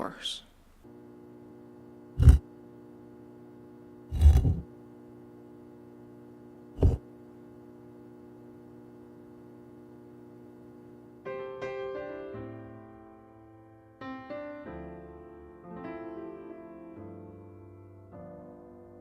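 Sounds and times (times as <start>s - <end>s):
steady low hum: 0.0s - 11.2s
heavy thumps: 2.2s - 2.4s, 6.8s - 7.0s.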